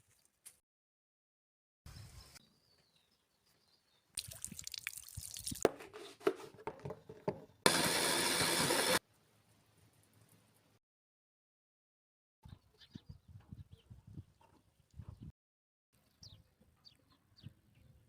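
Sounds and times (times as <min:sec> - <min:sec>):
water tap running: 0:07.7 - 0:09.0.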